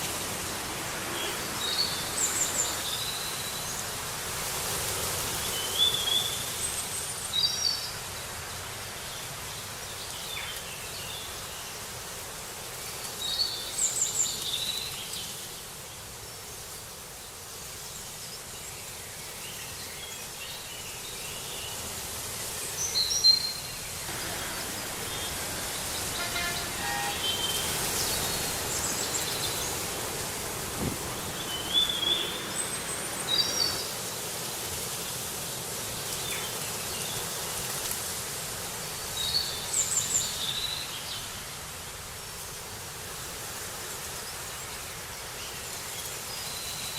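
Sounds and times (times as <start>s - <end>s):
outdoor background hiss: 0.0s - 46.9s
birds chirping: 23.6s - 34.0s.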